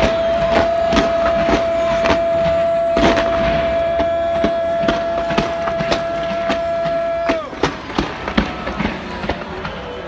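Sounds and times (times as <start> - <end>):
fireworks banging: 0.0 - 10.0.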